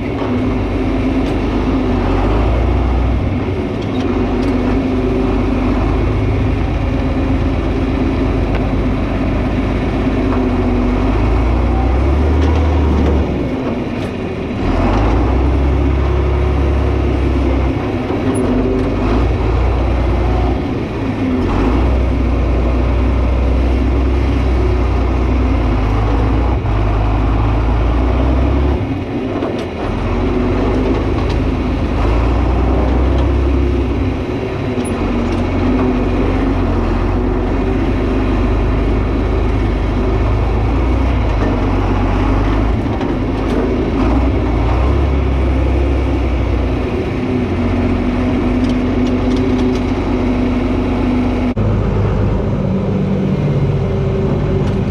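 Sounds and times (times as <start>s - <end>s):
tractor diesel engine droning: 0.0s - 54.9s.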